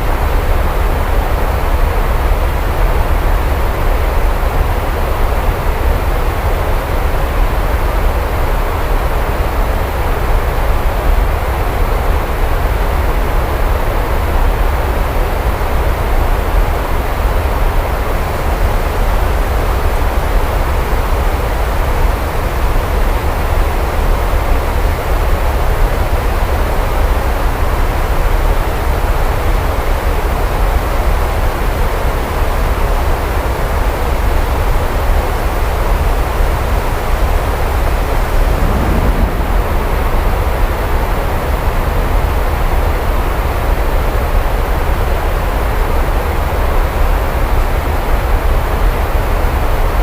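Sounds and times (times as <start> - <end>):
heavy rain: 37.5 - 42.0
deep low rumble: 37.7 - 41.7.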